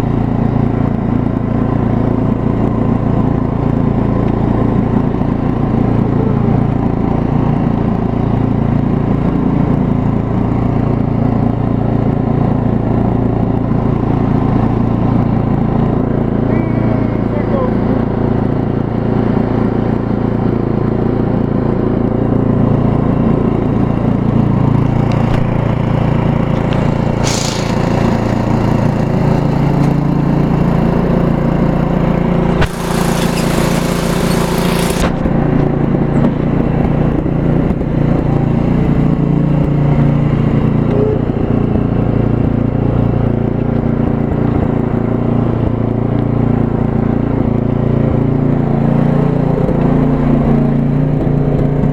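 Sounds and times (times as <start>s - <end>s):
riding lawn mower engine running: 0.0s - 51.9s
hissing noise: 26.5s - 28.6s.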